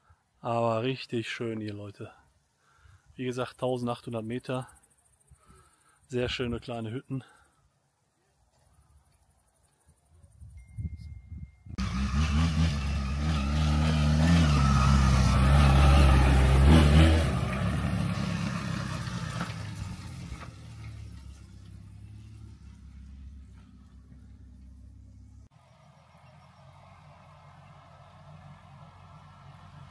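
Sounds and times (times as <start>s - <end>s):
vehicle engine revving under load: 11.8s - 29.9s.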